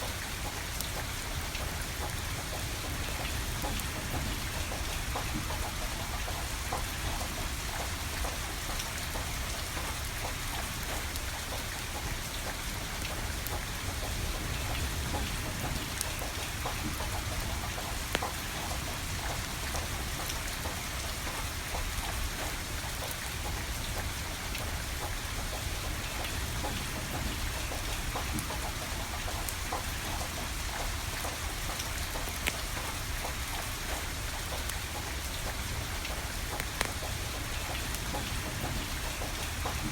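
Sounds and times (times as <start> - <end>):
steady rain falling: 0.0 - 39.9
wood fire crackling and popping: 31.2 - 33.4, 34.0 - 39.0.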